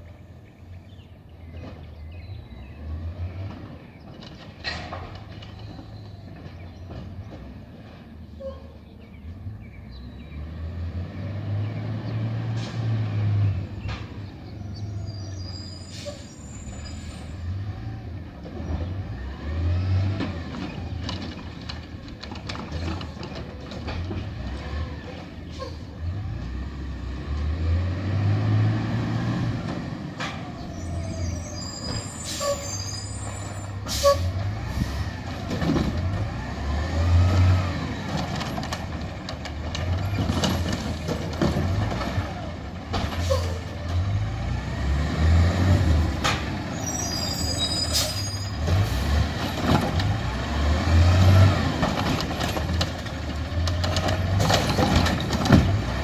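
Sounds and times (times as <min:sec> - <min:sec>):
truck diesel engine revving: 0:09.4 - 0:56.0
air brake hisses: 0:15.6 - 0:16.6.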